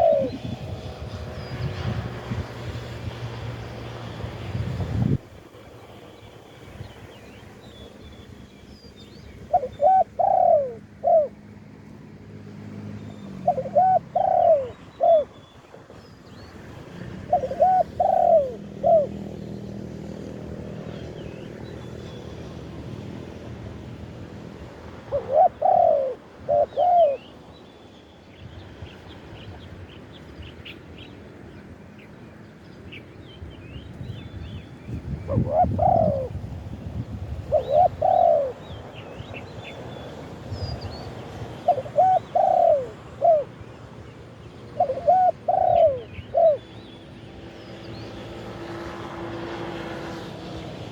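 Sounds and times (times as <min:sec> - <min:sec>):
dove cooing: 0:00.0 - 0:01.0, 0:09.4 - 0:11.4, 0:13.3 - 0:15.4, 0:16.9 - 0:20.4, 0:25.0 - 0:27.4, 0:35.1 - 0:36.4, 0:37.5 - 0:39.8, 0:41.2 - 0:43.7, 0:44.6 - 0:47.0
small birds chirping: 0:00.0 - 0:02.0, 0:25.2 - 0:48.9.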